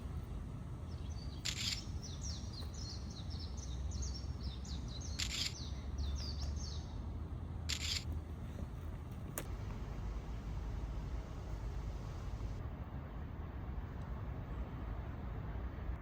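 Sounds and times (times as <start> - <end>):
small bird chirping: 0.9 - 7.0, 7.7 - 8.1.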